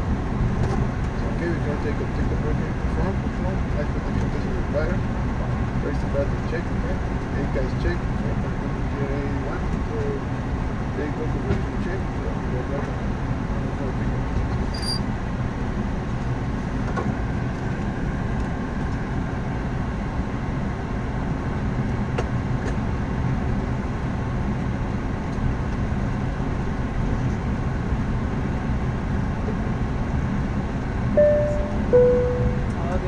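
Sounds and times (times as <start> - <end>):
jet engine rumble and airflow: 0.0 - 33.0
chime tone: 31.2 - 32.8.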